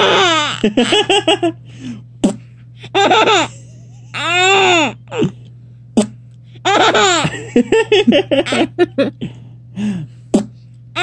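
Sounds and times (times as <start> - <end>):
baby laughing: 3.0 - 5.3, 6.6 - 7.6.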